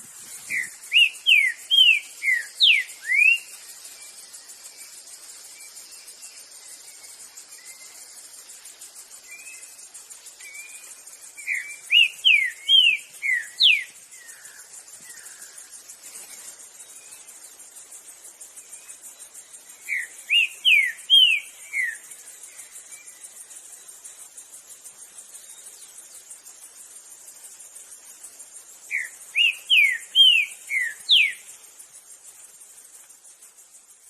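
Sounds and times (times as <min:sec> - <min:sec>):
insects chirring: 0:00.0 - 0:34.0
bird whistling song: 0:00.2 - 0:04.2, 0:09.2 - 0:15.4, 0:19.6 - 0:23.2, 0:28.9 - 0:31.6.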